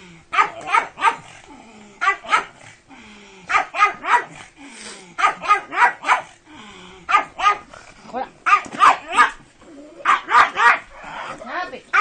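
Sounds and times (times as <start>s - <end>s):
dog barking: 0.3s - 1.3s, 2.0s - 2.6s, 3.5s - 4.4s, 5.2s - 6.4s, 7.1s - 7.7s, 8.4s - 9.4s, 10.0s - 11.0s.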